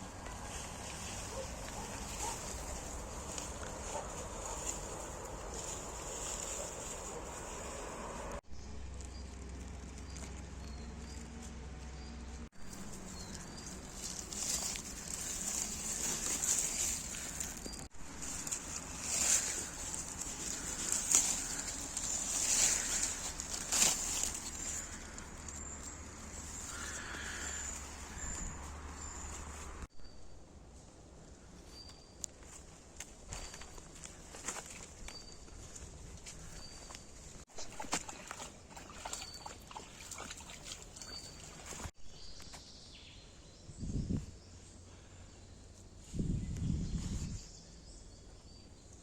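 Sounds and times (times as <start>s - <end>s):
rustling crunches: 0.3s - 8.4s, 12.6s - 29.9s.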